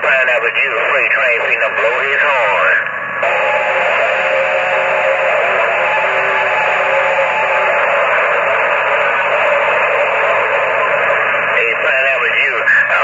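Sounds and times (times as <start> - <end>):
radio hiss: 0.0 - 13.0
horn chord over radio: 3.2 - 12.3.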